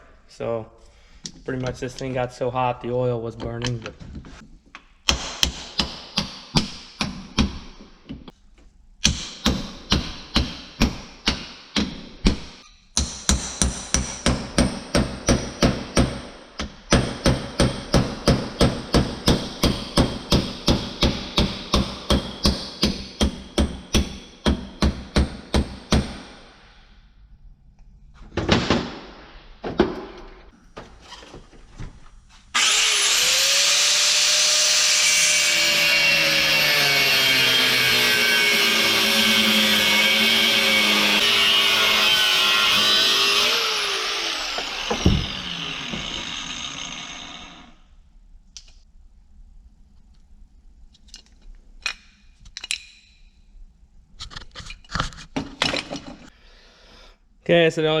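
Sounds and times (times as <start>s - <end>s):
hammer striking metal: 9.0s - 26.7s
power tool whining: 32.6s - 47.8s.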